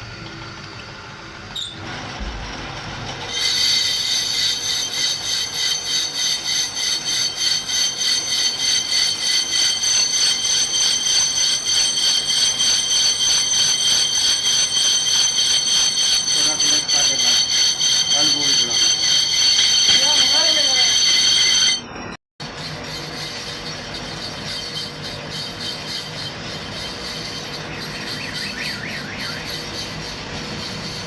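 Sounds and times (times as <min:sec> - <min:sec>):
lathe cutting with high ringing squeal: 0:03.3 - 0:31.0.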